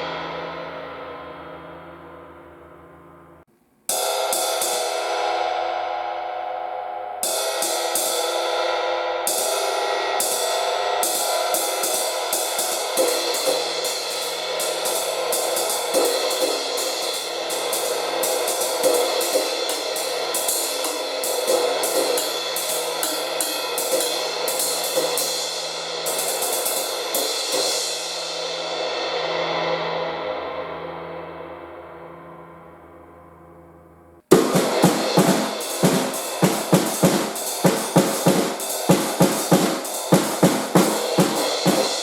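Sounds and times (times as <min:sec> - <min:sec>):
cymbal struck with a stick: 0:03.9 - 0:06.6, 0:07.2 - 0:28.8, 0:34.3 - 0:42.0.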